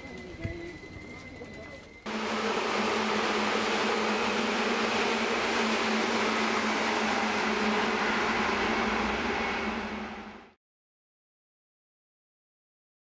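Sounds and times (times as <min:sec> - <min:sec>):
wheels rumbling on rail: 0:00.0 - 0:10.6
low motor hum: 0:02.1 - 0:10.6.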